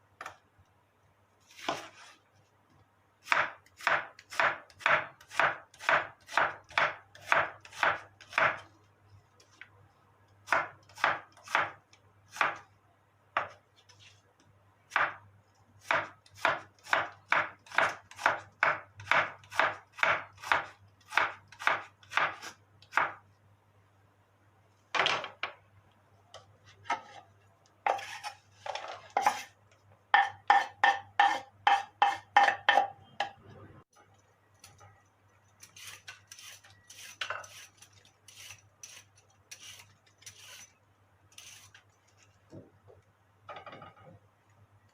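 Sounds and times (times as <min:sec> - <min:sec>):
knife chopping on cutting board: 0:03.2 - 0:08.6, 0:10.5 - 0:12.6, 0:15.8 - 0:23.2, 0:30.1 - 0:33.4.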